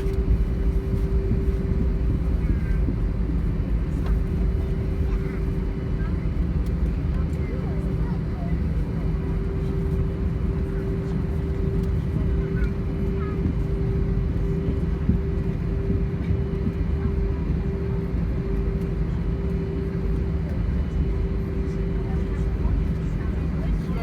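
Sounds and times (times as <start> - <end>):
airplane cabin engine rumble: 0.0 - 24.0.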